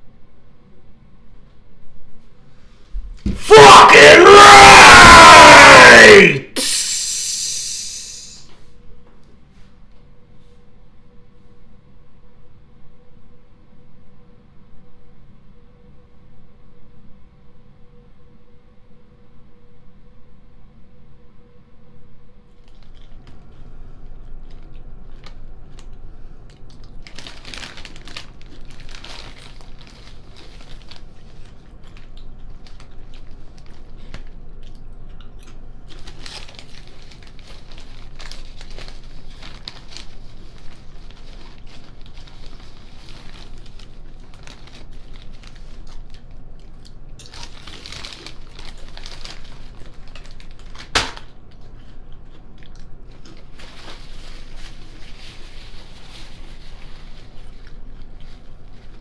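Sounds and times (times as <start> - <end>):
paper wrappers crinkling: 26.7 - 34.3, 35.9 - 51.6, 53.2 - 59.0.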